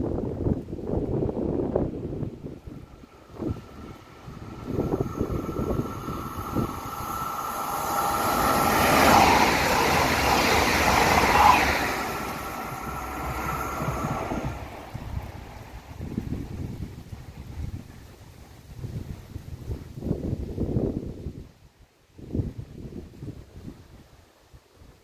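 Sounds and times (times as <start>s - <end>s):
wind buffeting microphone: 0.0s - 25.0s
train passing at speed: 1.0s - 19.2s.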